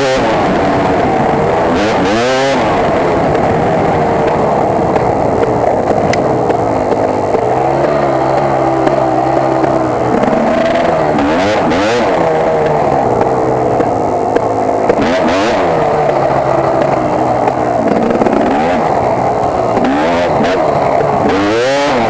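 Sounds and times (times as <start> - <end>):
two-stroke engine revving: 0.0 - 22.0.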